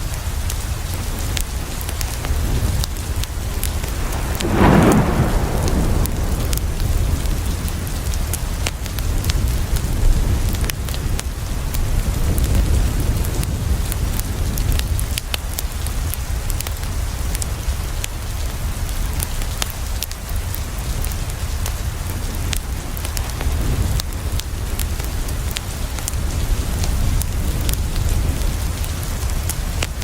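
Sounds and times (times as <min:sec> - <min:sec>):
rain against a window: 0:00.1 - 0:30.0
wood fire crackling: 0:02.5 - 0:09.4
low rumble: 0:03.1 - 0:08.3.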